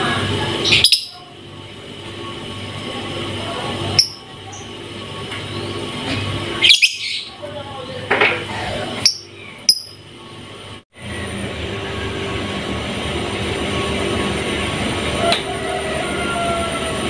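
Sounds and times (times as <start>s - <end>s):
vehicle engine rumbling: 0.0s - 17.0s
high bird chirps: 0.6s - 1.2s, 6.6s - 7.4s, 9.0s - 10.0s.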